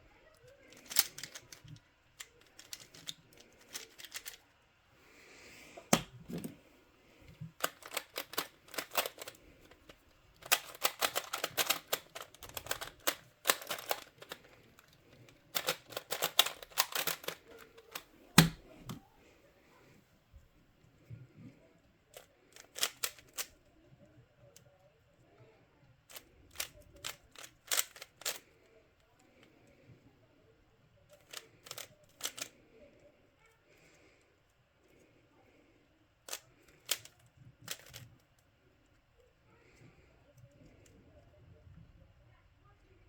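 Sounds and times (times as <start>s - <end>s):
puzzle cube clicking turns: 0.6s - 4.4s, 5.8s - 6.6s, 7.2s - 19.0s, 22.2s - 23.6s, 26.1s - 28.6s, 31.2s - 32.6s, 36.3s - 38.2s.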